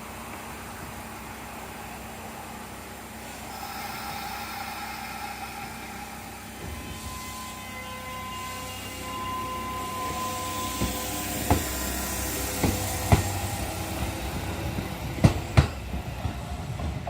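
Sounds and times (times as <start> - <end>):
electric train hum: 0.0 - 17.0
high whining tones: 3.3 - 15.6.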